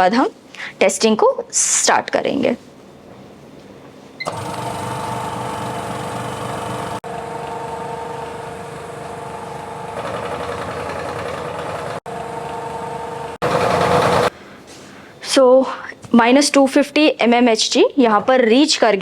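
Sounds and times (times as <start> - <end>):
vacuum pump humming: 4.2 - 14.4.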